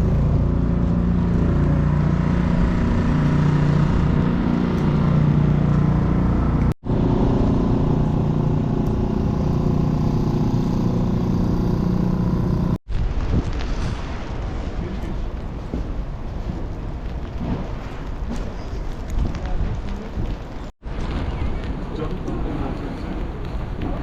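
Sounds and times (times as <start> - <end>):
vehicle engine humming: 0.0 - 12.8
city street noise: 0.0 - 24.0
wind: 0.0 - 24.0.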